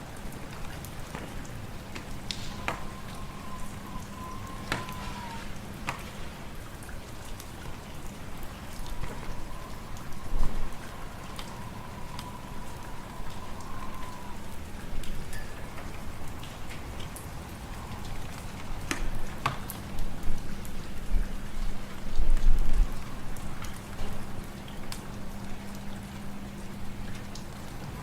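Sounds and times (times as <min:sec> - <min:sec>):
low wind-like rumble: 0:00.0 - 0:28.0
fire crackling and popping: 0:00.3 - 0:06.5.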